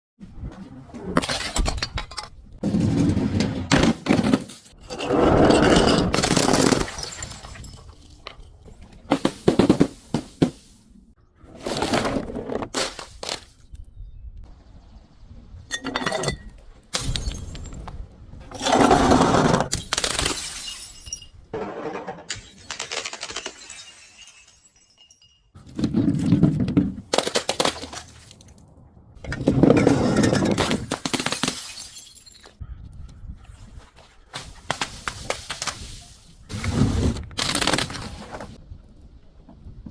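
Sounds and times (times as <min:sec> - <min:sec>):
glass bottles shattering: 0:04.0 - 0:08.4, 0:15.7 - 0:17.9, 0:19.7 - 0:21.5, 0:22.3 - 0:25.7, 0:29.6 - 0:32.6
glass shards clinking: 0:19.8 - 0:21.4, 0:22.3 - 0:25.6.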